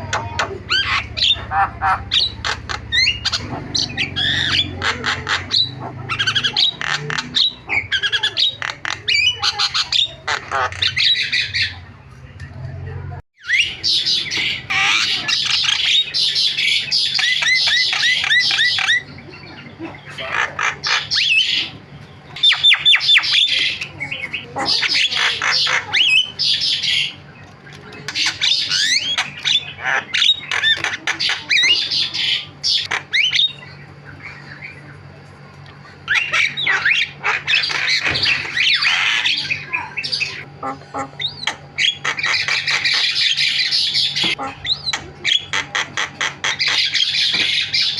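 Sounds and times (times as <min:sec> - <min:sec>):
myna squawking and whistling: 0:00.0 - 0:11.8.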